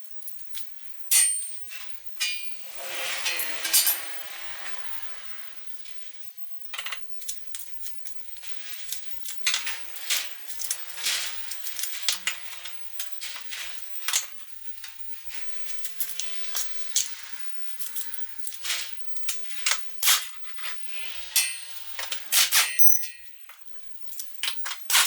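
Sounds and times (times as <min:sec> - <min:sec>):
hand tools clinking against metal: 0:01.1 - 0:04.9, 0:09.2 - 0:17.2, 0:17.8 - 0:23.6.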